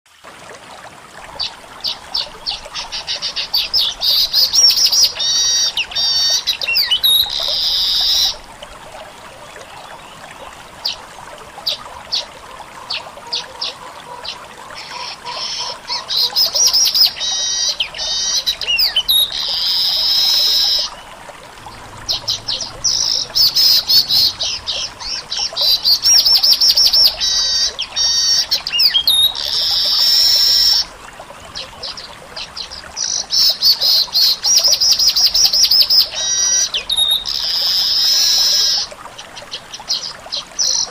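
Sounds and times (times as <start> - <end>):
weaver bird singing: 2.2 - 8.3.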